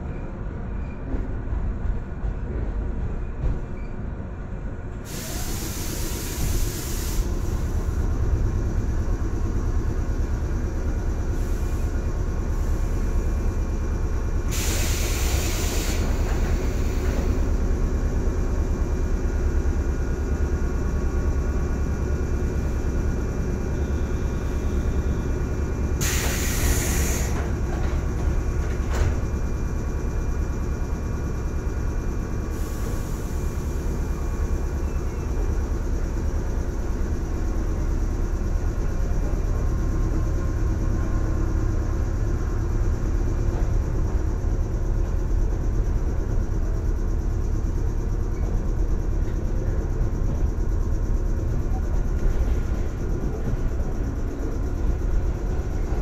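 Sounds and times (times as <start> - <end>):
train rumbling on rails: 0.0 - 56.0
short air hisses: 5.0 - 7.8, 14.5 - 17.4, 26.0 - 27.5, 32.5 - 33.6.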